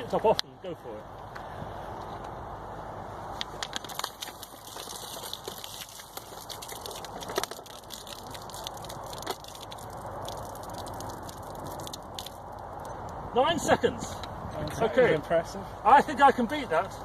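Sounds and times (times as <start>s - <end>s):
water pouring from a bottle: 3.6s - 13.2s.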